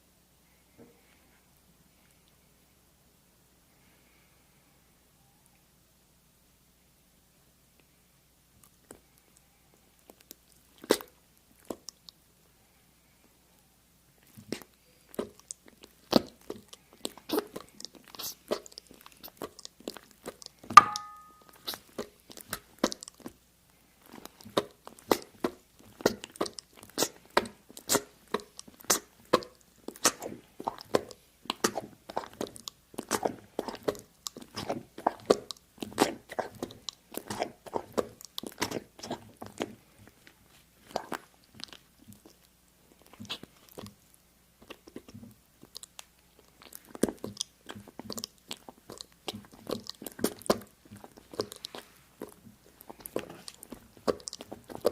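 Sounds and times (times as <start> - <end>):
short ringing ping: 20.8 - 21.5.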